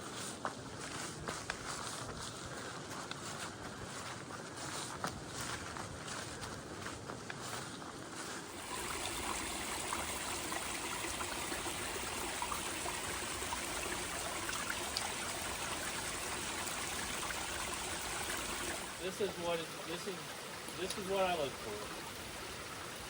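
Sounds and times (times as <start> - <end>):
creek water rushing: 8.4 - 23.0.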